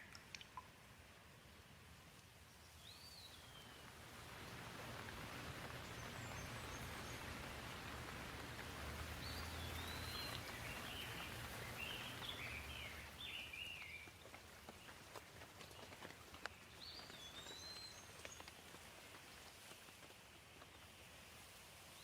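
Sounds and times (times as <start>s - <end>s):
gentle rain hiss: 0.0s - 22.0s
bird chirping: 9.2s - 14.1s.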